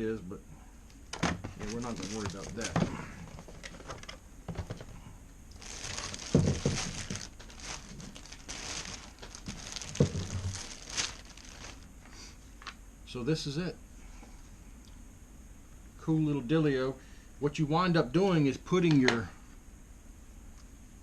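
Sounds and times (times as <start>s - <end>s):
packaging crinkling and rustling: 1.1s - 11.9s.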